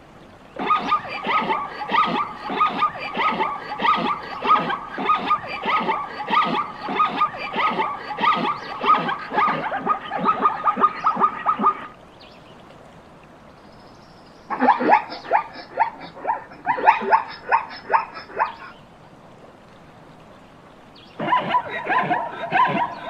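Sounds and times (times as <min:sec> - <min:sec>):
dogs yelping: 0:00.6 - 0:11.9, 0:14.5 - 0:18.7, 0:21.2 - 0:23.0.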